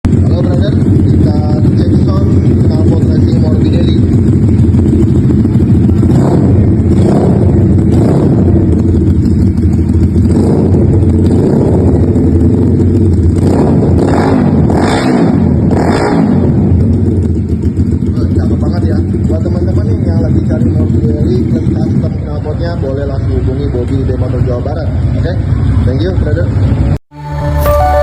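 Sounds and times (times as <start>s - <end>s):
motorcycle engine idling with revs: 0.0s - 27.0s.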